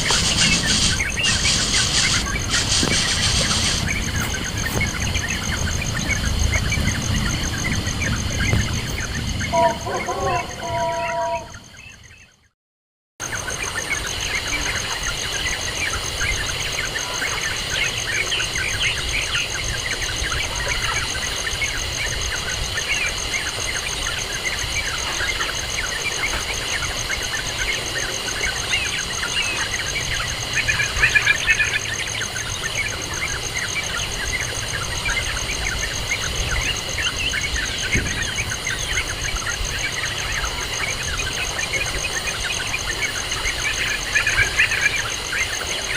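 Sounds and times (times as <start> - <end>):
high insect-like buzz: 0.0 - 6.2
small birds chirping: 0.0 - 12.5, 13.2 - 45.9.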